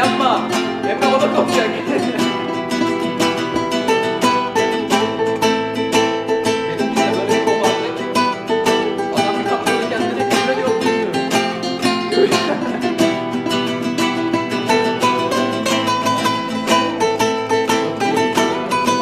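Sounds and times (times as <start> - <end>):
plucked string instrument: 0.0 - 19.0.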